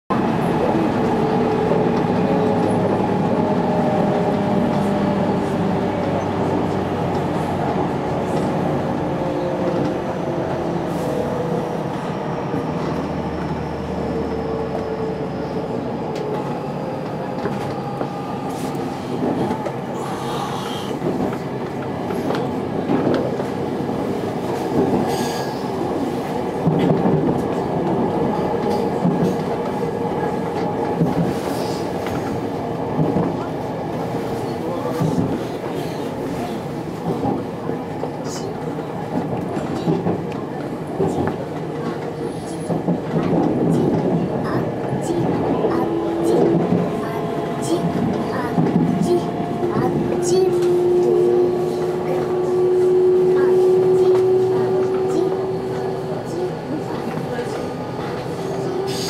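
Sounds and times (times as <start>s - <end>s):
electric train running noise: 0.2s - 59.0s.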